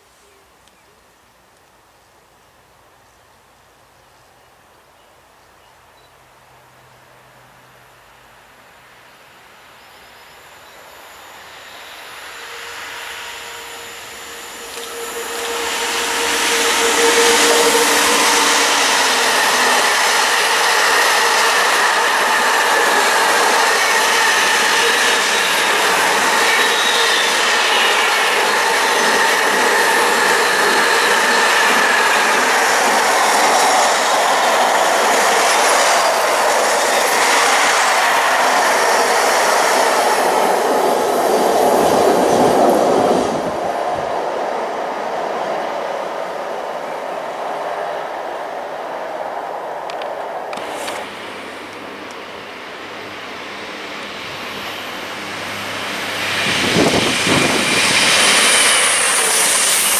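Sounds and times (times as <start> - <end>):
high wheel squeal: 9.8 - 43.6, 54.2 - 59.9
train wheels rattling and rumbling: 12.0 - 44.9, 49.8 - 59.9.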